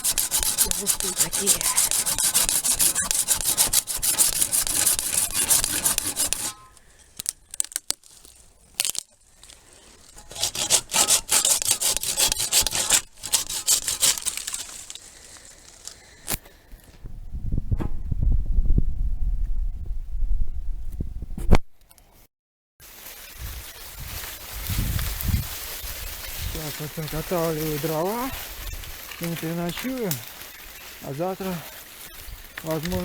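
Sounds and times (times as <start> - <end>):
saw cutting through wood: 0.0 - 6.8, 9.8 - 15.4, 22.8 - 33.0
low rumble: 17.1 - 21.4.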